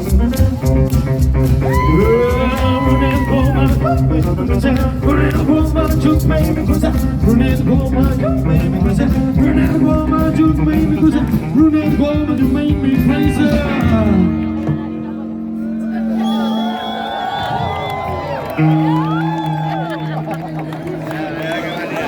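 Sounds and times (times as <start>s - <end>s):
steady drum beat: 0.0s - 14.3s
rockabilly band playing live: 0.0s - 16.2s, 17.6s - 22.0s
guitar: 0.0s - 22.0s.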